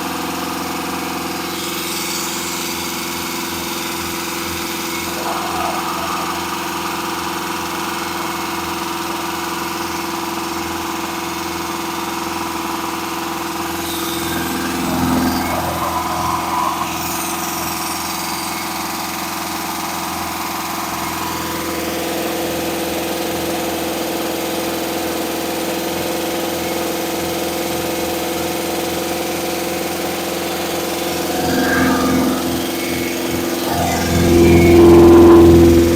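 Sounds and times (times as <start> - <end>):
engine running steadily: 30.0 - 35.9.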